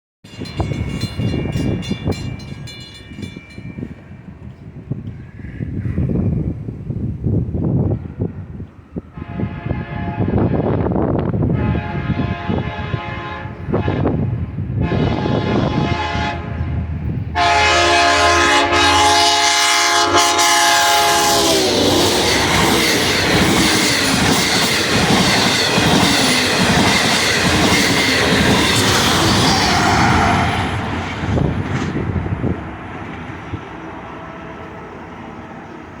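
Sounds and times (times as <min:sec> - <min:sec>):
train rushing by with wheel clatter: 0:00.3 - 0:36.0
locomotive horn blasts: 0:09.2 - 0:10.8, 0:11.5 - 0:23.0.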